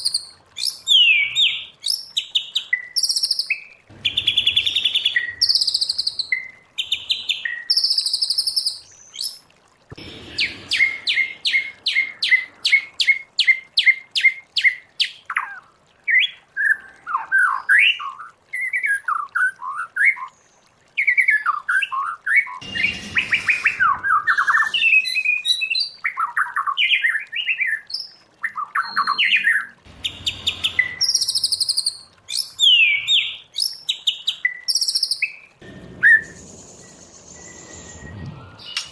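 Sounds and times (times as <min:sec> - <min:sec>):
bird singing: 0:28.5 - 0:33.5, 0:34.5 - 0:38.9.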